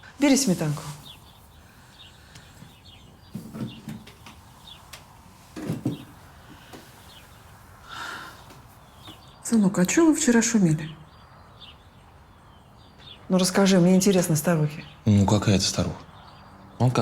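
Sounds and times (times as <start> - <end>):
bird chirps: 0.4 - 13.4.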